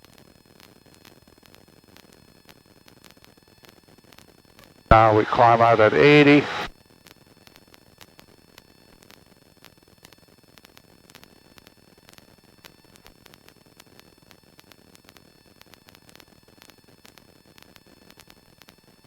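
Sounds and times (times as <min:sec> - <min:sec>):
intercom static hiss: 0:04.9 - 0:06.7.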